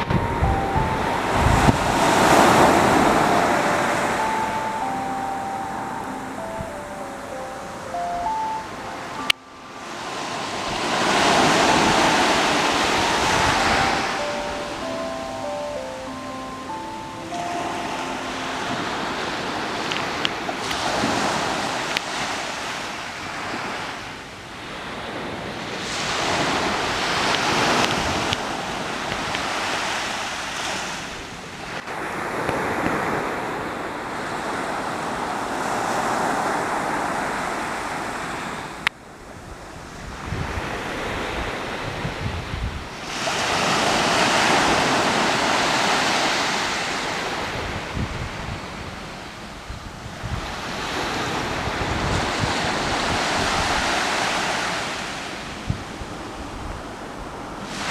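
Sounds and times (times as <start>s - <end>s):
wind buffeting microphone: 0.0s - 4.2s, 38.6s - 54.8s, 55.4s - 57.9s
sea waves washing onto shore: 0.0s - 38.9s, 39.8s - 57.9s.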